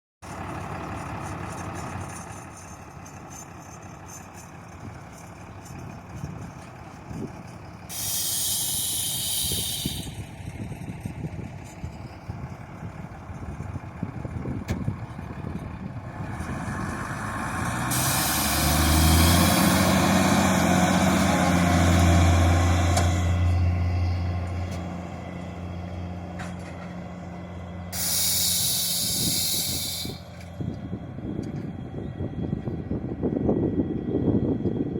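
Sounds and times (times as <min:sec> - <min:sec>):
tractor diesel engine working: 0:00.2 - 0:34.9
hiss: 0:07.9 - 0:10.4, 0:17.8 - 0:20.1, 0:27.9 - 0:30.4.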